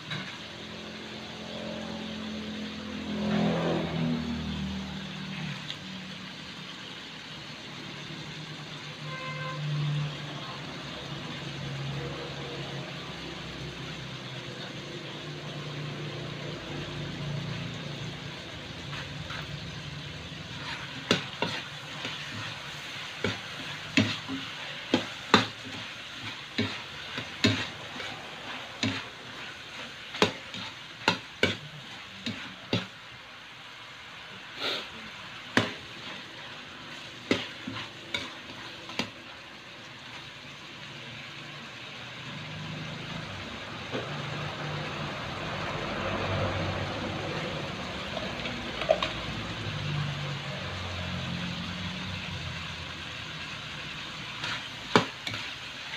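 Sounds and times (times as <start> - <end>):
food sizzling in a wok: 0.0 - 55.9
spatula knocking and scraping pan: 18.6 - 33.0, 35.5 - 39.2, 54.3 - 55.9.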